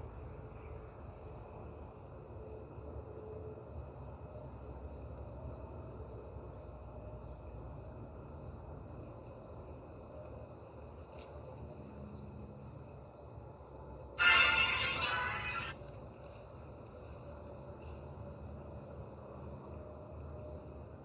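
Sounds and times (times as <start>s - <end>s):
crickets trilling: 8.4s - 21.0s.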